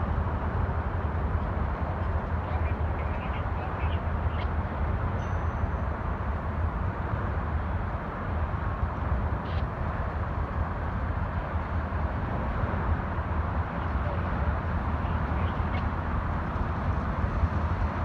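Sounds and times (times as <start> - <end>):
train rolling on rails: 0.0 - 18.0.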